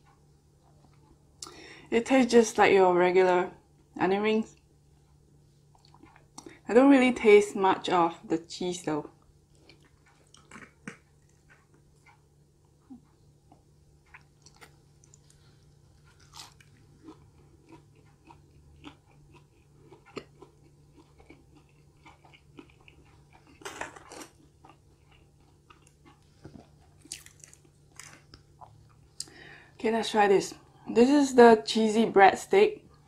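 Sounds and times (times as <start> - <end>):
crunchy chewing: 4.5 - 6.6, 9.2 - 29.4
wet mouth clicks: 9.7 - 11.8.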